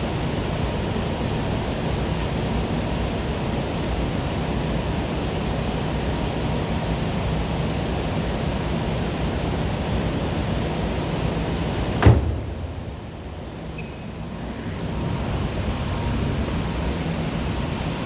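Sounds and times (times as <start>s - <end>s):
sharp knock: 12.0s - 13.4s.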